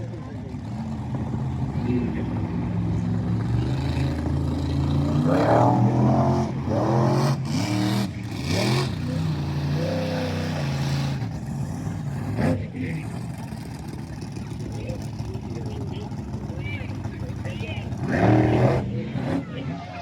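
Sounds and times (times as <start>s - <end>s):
monster truck engine revving: 0.0s - 20.0s.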